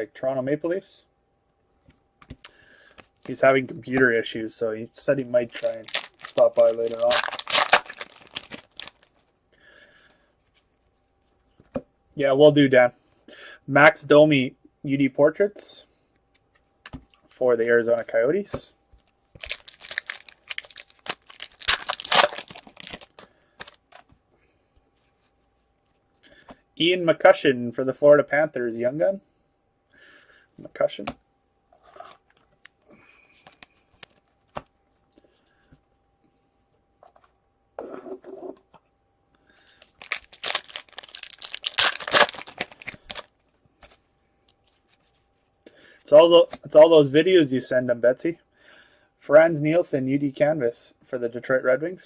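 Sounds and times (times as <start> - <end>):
card pack wrapper crinkling and tearing: 5.4 - 9.3, 19.4 - 24.0, 39.8 - 44.0.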